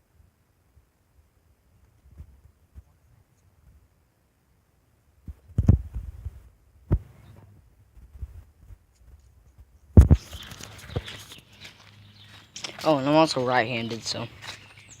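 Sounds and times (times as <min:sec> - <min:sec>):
wind rumble on microphone: 0:05.2 - 0:11.4.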